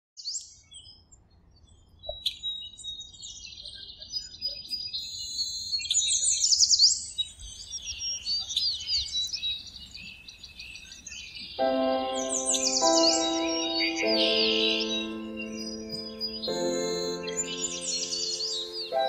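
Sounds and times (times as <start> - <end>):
birds chirping and singing: 5.0 - 19.0.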